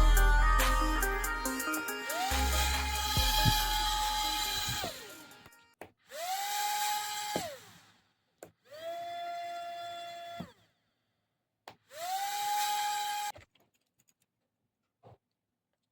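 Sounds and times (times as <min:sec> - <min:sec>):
small motor whine: 0:02.1 - 0:07.8, 0:11.9 - 0:13.3.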